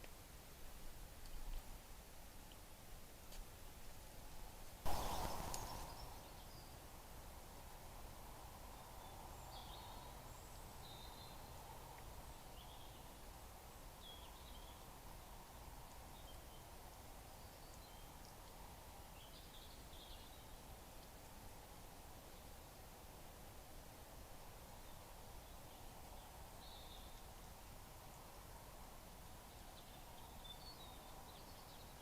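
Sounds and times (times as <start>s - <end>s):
steady low hiss: 0.0s - 32.0s
faint bird chirps: 4.9s - 6.8s.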